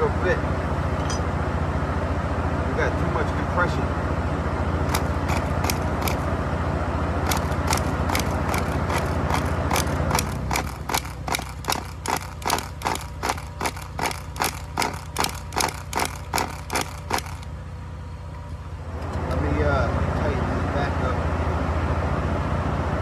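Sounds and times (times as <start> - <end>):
engine cranking whir: 2.6 - 21.8
regular clicking: 4.9 - 6.4, 7.2 - 17.5.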